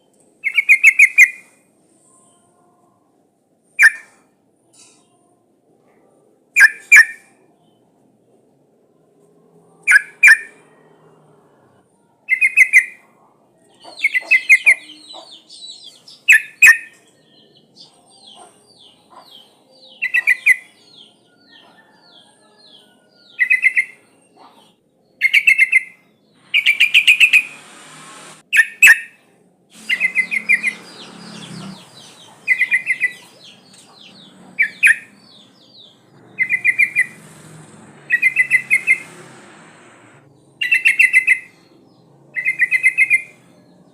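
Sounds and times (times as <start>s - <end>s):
quick high bird chirps: 26.5s - 27.7s, 29.8s - 39.3s.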